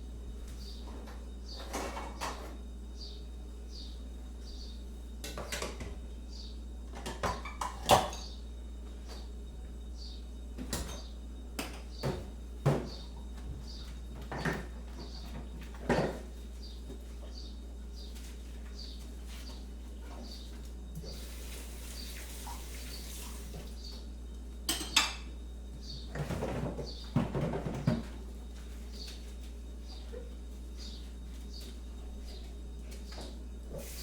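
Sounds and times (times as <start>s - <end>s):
steady low hum: 0.0s - 34.0s
faint bird chirps: 2.9s - 4.9s, 9.9s - 11.2s, 28.9s - 33.3s
crockery and cutlery clinking: 24.7s - 25.3s.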